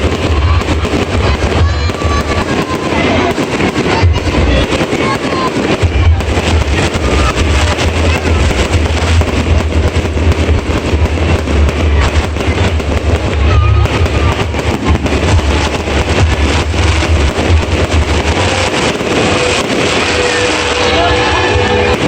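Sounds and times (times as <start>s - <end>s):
firework whistle: 0.0s - 22.0s
fireworks bangs and crackles: 0.0s - 22.0s
low rumble: 5.8s - 22.0s.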